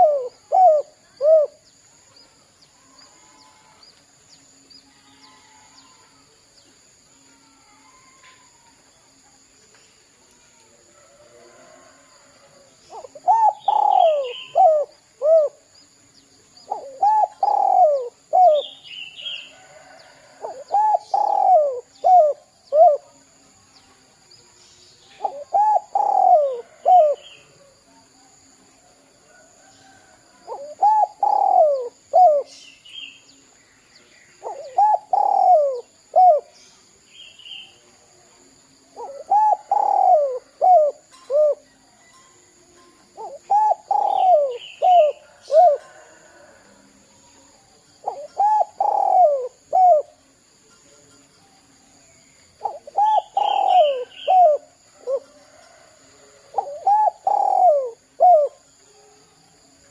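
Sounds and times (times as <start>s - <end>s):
dove cooing: 0.0s - 1.6s, 12.9s - 15.7s, 16.7s - 18.8s, 19.6s - 23.1s, 25.2s - 27.7s, 30.4s - 32.6s, 34.4s - 36.6s, 38.9s - 41.7s, 43.2s - 46.7s, 48.0s - 50.2s, 52.6s - 59.2s.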